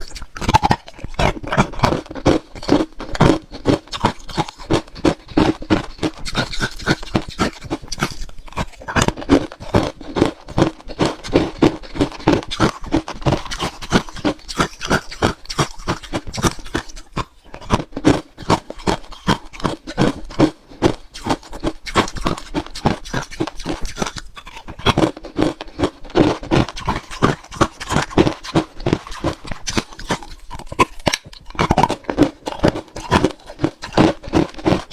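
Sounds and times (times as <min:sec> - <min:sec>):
ice crunching between teeth: 0:00.0 - 0:34.9.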